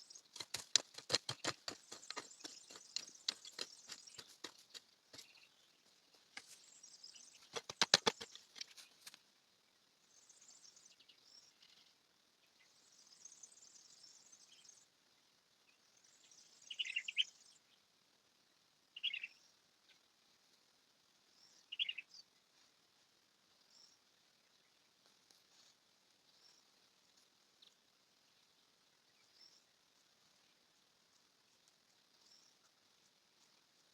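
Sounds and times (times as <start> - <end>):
quick run of clicks: 0.2 - 5.5, 7.3 - 9.2
faint bird chirps: 10.0 - 17.9, 18.9 - 20.2, 21.3 - 22.4.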